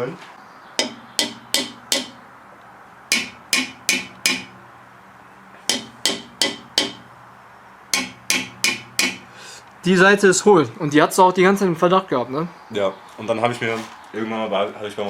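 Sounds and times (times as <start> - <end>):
knocking on metal exhaust: 0.8 - 2.2, 3.1 - 4.6, 5.7 - 7.2, 8.0 - 9.4.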